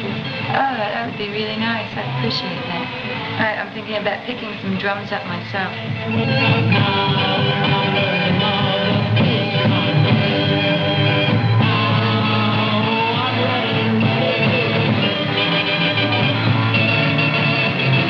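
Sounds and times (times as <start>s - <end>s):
rock band playing: 0.0s - 3.5s, 5.7s - 18.0s
electric guitar: 0.0s - 18.0s.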